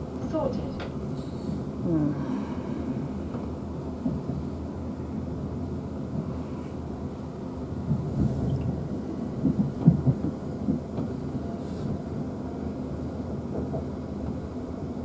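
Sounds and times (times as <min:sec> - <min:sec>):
train cabin rumble: 0:00.0 - 0:15.0
train wheel knocks: 0:09.4 - 0:11.2.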